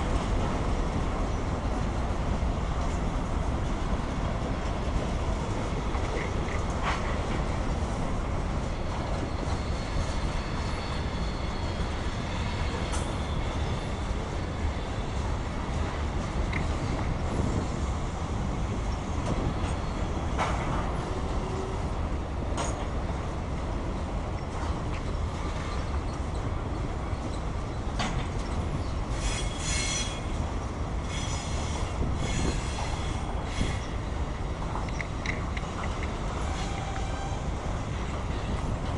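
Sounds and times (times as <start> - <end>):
freight train wheels rumbling on rail: 0.0 - 38.9
wheel squeal: 9.2 - 14.1.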